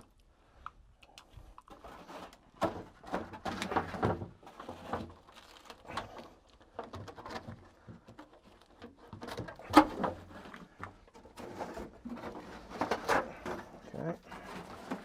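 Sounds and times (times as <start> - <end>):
parts and debris knocking: 2.5 - 15.0.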